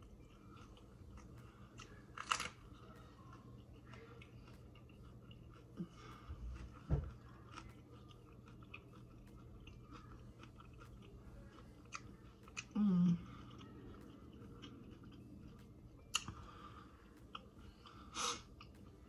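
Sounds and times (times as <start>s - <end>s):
crunchy taco chewing: 0.0s - 19.0s
person humming: 12.7s - 13.3s.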